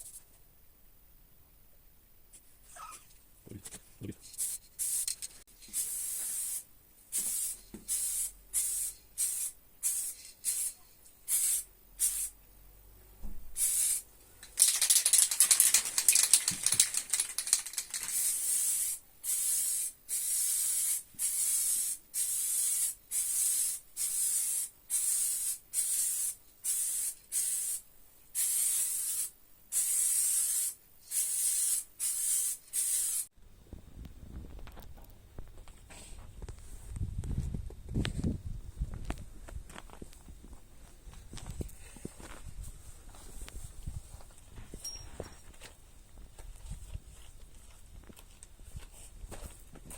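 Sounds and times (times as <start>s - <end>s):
paint spraying in hissing bursts: 4.4s - 12.4s, 13.6s - 33.3s.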